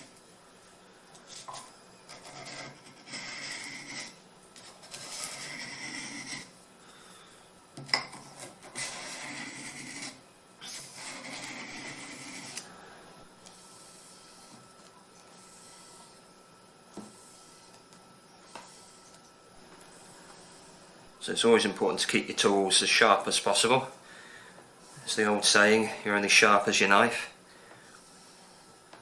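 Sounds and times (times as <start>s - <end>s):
knife scraping on sharpening stone: 1.3s - 4.2s.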